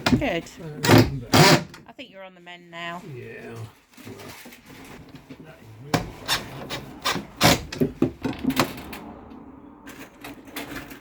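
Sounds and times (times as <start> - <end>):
hand tool rasping on wood: 0.1 - 1.8, 6.0 - 7.8.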